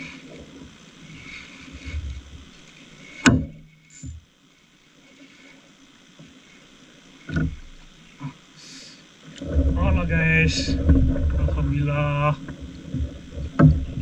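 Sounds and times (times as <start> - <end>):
sharp knocks: 3.2 - 3.6
low rumbling handling noise: 7.1 - 8.1, 9.3 - 14.0.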